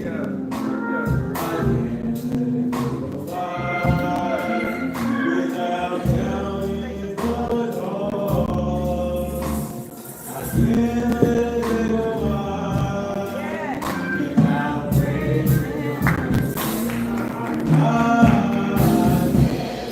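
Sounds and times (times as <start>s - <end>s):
gospel chorus singing: 0.0s - 19.9s
instrumental accompaniment: 0.0s - 19.9s.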